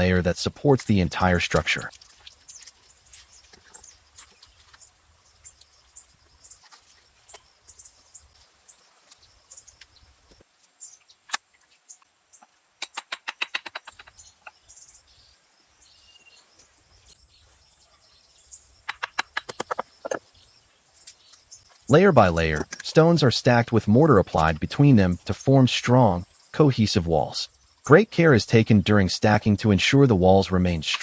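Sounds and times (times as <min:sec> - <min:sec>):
birds chirping: 0:00.0 - 0:31.0
sharp clicks: 0:12.8 - 0:14.1, 0:18.8 - 0:20.2.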